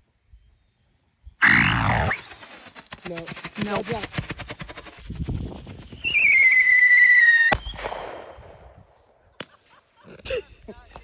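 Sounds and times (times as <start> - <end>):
firework whistle: 6.0 - 7.9
firework crack: 6.0 - 9.6.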